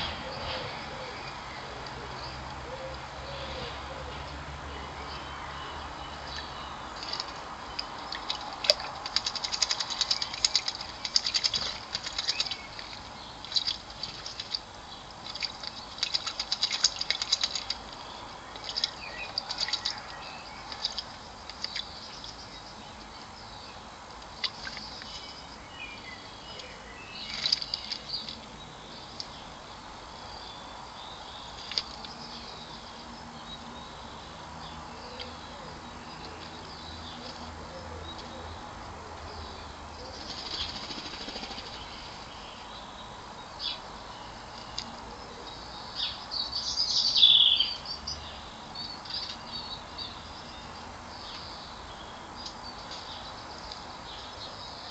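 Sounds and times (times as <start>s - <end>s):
bird splashing in water: 6.3s - 22.4s, 27.2s - 28.5s
wings fluttering in water: 7.0s - 22.4s, 27.3s - 28.4s, 40.2s - 41.8s.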